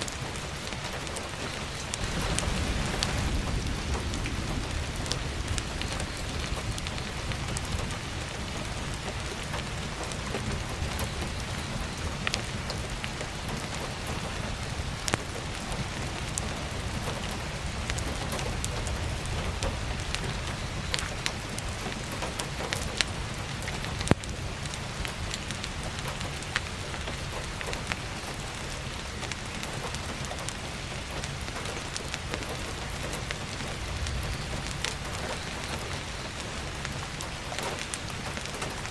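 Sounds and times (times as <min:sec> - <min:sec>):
heavy rain on skylight: 0:00.0 - 0:38.9
wood stove fire crackling: 0:00.0 - 0:38.9
sharp fire pops: 0:00.1 - 0:38.9
low rumble: 0:01.9 - 0:12.6.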